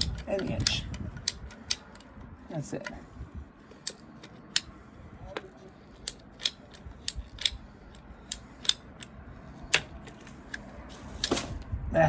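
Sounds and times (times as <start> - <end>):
pipe cutter clicking: 0.0 - 2.2, 6.0 - 10.6.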